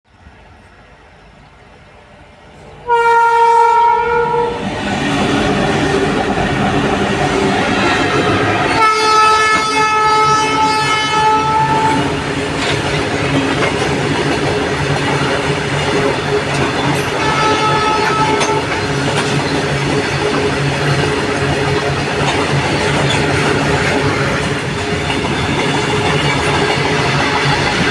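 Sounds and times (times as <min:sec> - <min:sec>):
train rumbling past: 0:00.1 - 0:27.9
locomotive horn blasts: 0:02.8 - 0:04.6, 0:08.8 - 0:12.1, 0:17.1 - 0:18.8
clickety-clack of wheels on rails: 0:04.6 - 0:27.9.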